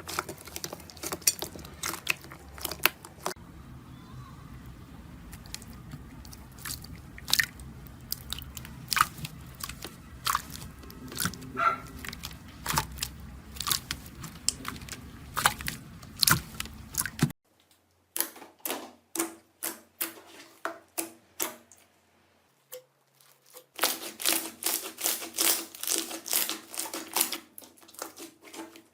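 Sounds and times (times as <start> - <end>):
low hum: 2.3 - 17.3.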